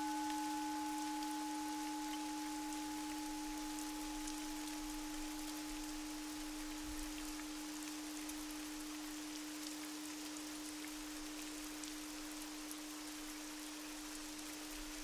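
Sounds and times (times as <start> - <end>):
high pure tone: 0.0 - 6.1
low sustained tone: 0.0 - 9.0
rain patter: 0.0 - 15.0.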